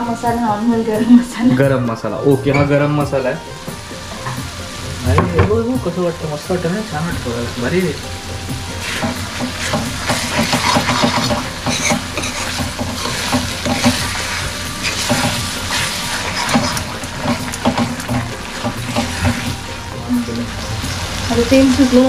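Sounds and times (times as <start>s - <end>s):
paste sizzling in a pan: 2.7s - 22.0s
spoon scraping a pan: 8.7s - 19.7s.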